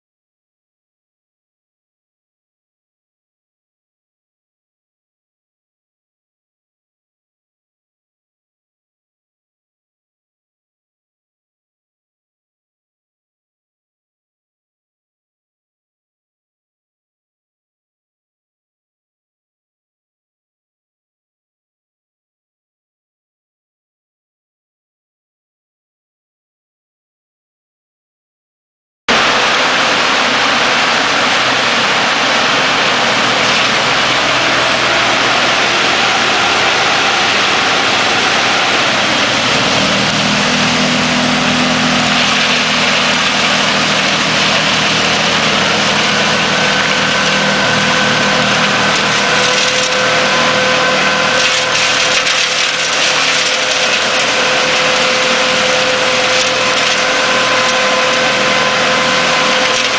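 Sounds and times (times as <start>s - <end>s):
diesel engine: 29.1s - 59.9s
steady whining tones: 29.1s - 59.9s
wood chipper running: 29.1s - 59.9s.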